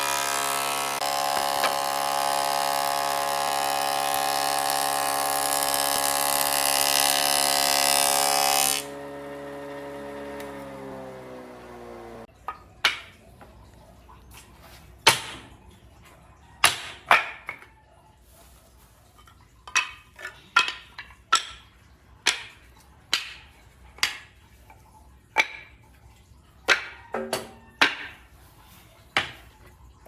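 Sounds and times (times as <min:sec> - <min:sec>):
power tool whine: 0:00.0 - 0:12.3.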